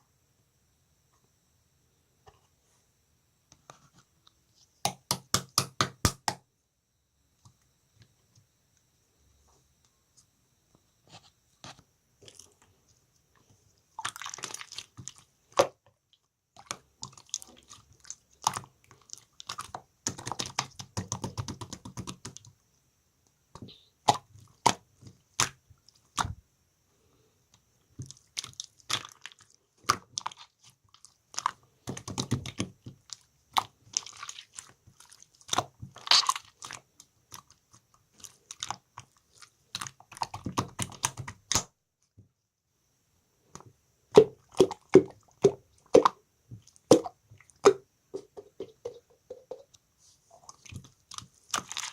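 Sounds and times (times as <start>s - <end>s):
slime crackling and popping: 28.0s - 41.7s, 50.6s - 51.9s.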